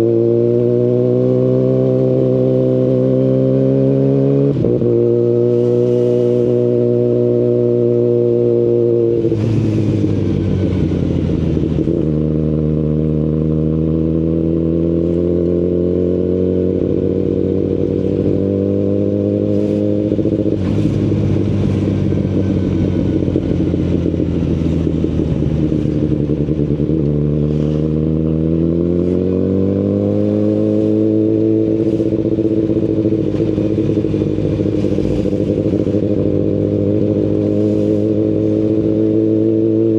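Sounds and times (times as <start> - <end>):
motorcycle engine accelerating: 0.0 - 39.9
exhaust cracking: 19.4 - 39.3.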